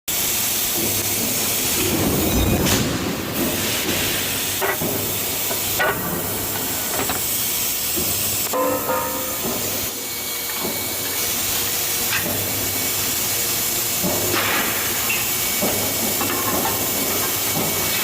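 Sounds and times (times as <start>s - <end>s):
machinery hiss and rumble: 0.1s - 18.0s
sharp metallic clanks: 8.5s - 9.9s.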